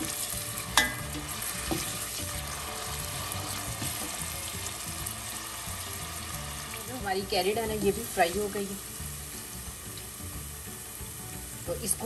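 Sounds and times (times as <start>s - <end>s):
carrots sizzling in hot oil: 0.0s - 12.0s
spoon clinking against metal pot: 0.8s - 1.9s.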